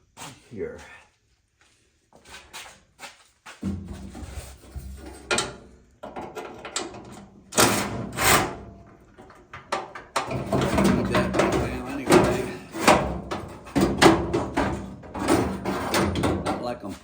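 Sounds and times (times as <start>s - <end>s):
rattling metal scrapes: 3.6s - 17.0s
metal clicks and clunks: 5.1s - 16.7s.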